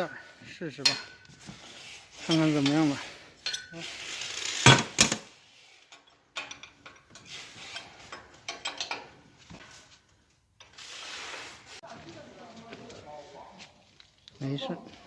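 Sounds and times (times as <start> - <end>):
tool clicks and scrapes: 1.0 - 10.0.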